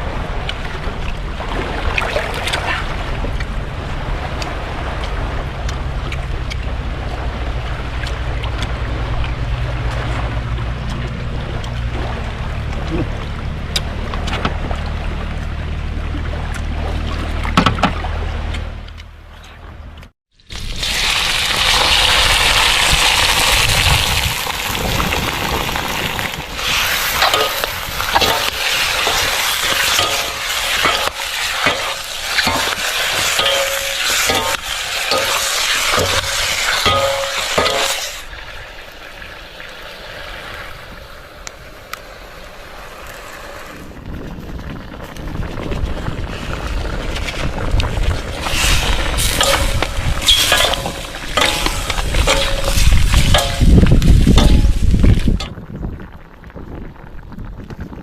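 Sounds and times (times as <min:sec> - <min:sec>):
food sizzling in a pan: 0:26.6 - 0:38.3
utensil clinking against pan: 0:29.9 - 0:38.0, 0:49.4 - 0:53.7.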